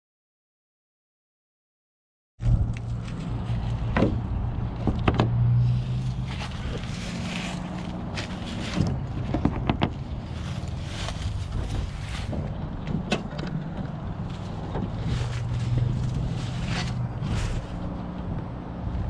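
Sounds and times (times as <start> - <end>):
vehicle engine and road hum: 2.4 - 19.0
wind noise: 2.4 - 19.0
sharp clicks and knocks: 2.5 - 5.4, 8.7 - 10.0, 11.6 - 15.0.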